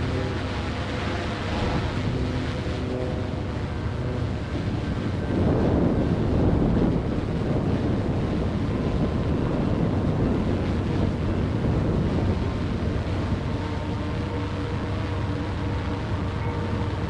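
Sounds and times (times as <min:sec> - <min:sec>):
steady low rumble: 0:00.0 - 0:17.0
wind buffeting microphone: 0:00.0 - 0:17.0.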